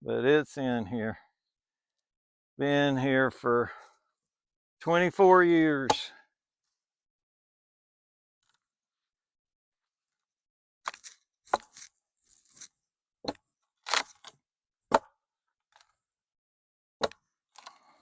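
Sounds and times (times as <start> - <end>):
sharp knocks and cracks of wood: 10.9 - 15.9, 17.0 - 17.8.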